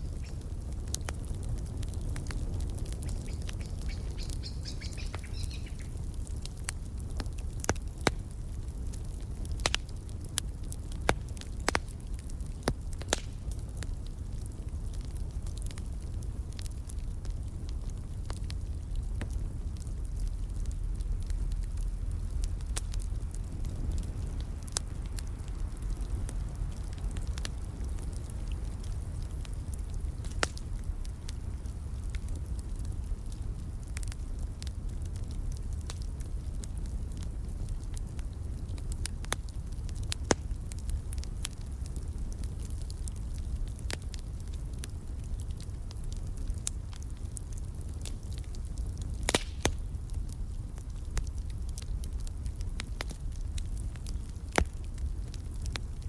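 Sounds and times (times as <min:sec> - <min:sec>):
wood fire crackling and popping: 0:00.0 - 0:56.0
birds chirping: 0:03.3 - 0:05.9.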